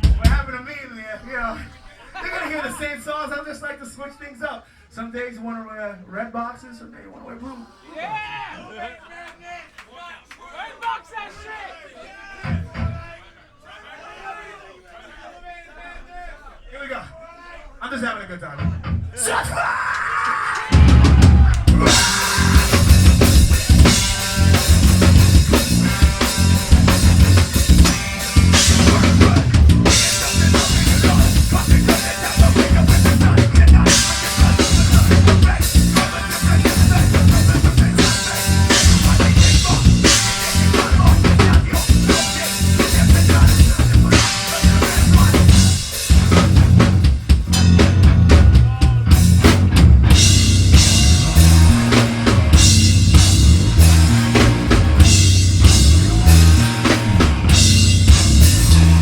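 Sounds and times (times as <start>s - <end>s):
drum kit: 0.0s - 0.5s, 20.6s - 59.0s
live metal band: 19.2s - 59.0s
heavy low bass: 20.8s - 59.0s.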